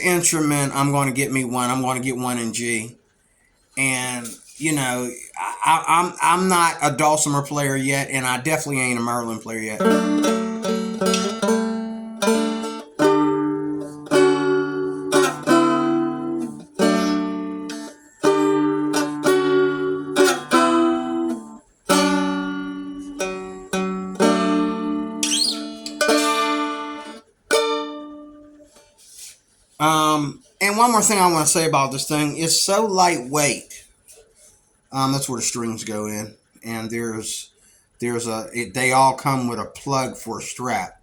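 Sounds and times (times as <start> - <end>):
stick dulcimer strummed: 9.7 - 29.0.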